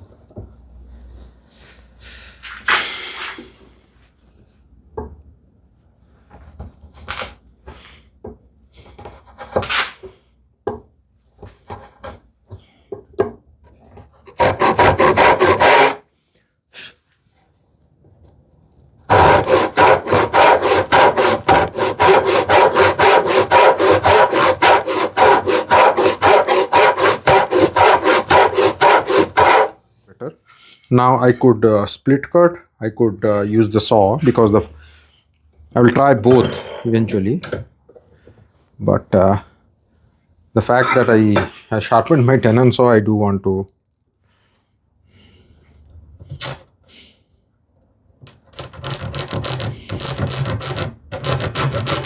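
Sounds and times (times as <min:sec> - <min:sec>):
hand saw cutting wood: 0:09.0 - 0:10.0, 0:14.2 - 0:16.0, 0:19.1 - 0:29.8, 0:48.6 - 0:52.0.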